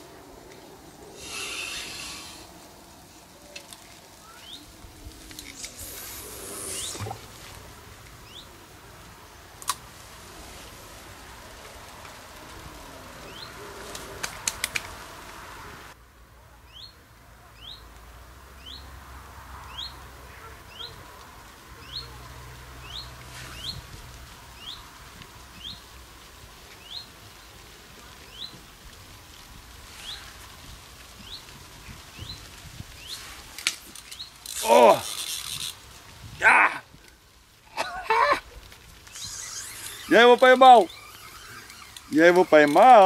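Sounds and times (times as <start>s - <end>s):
small bird chirping: 5.5s - 7.2s, 39.1s - 40.2s, 40.8s - 42.7s
sharp clicks: 13.9s - 15.0s.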